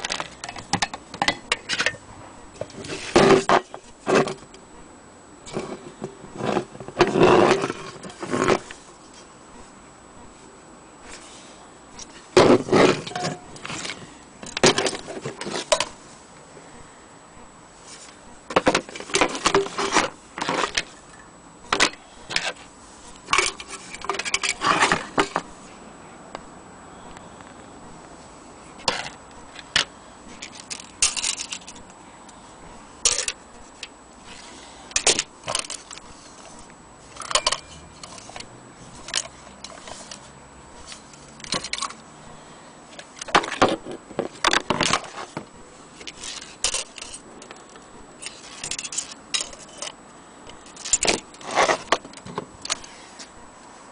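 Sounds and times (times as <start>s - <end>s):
metal lantern clinking and rattling: 12.4s - 16.0s, 23.2s - 25.5s, 28.9s - 31.9s, 33.0s - 33.9s, 35.0s - 36.5s, 37.2s - 40.2s, 40.9s - 42.0s, 46.0s - 52.9s.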